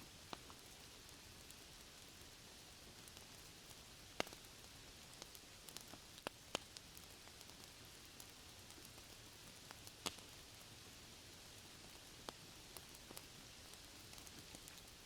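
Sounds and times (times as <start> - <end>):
faint rain hiss: 0.0 - 15.0
wood fire crackling pops: 3.0 - 10.4, 11.8 - 15.0.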